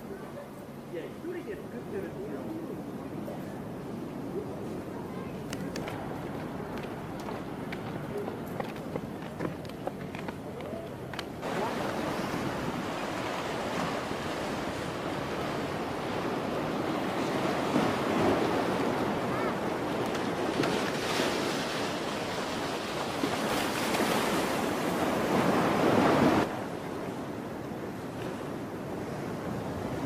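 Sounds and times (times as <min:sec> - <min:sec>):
sea waves: 0:00.0 - 0:30.0.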